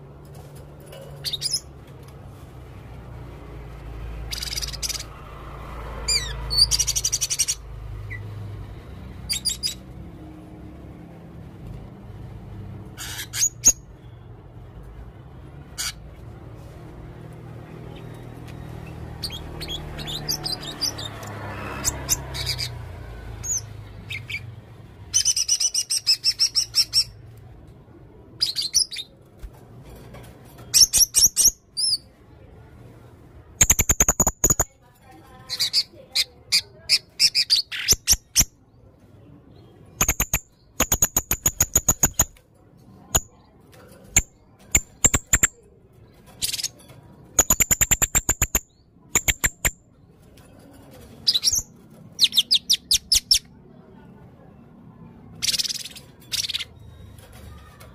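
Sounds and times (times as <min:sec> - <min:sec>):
parrot chirps and trills: 0:01.1 - 0:01.8, 0:04.0 - 0:05.3, 0:06.0 - 0:08.4, 0:09.2 - 0:10.0, 0:12.8 - 0:14.2, 0:15.7 - 0:16.2, 0:17.8 - 0:27.3, 0:28.4 - 0:29.2, 0:30.6 - 0:32.1, 0:33.6 - 0:34.7, 0:35.4 - 0:38.6, 0:39.6 - 0:42.4, 0:43.0 - 0:50.0, 0:51.2 - 0:53.6, 0:55.2 - 0:57.9.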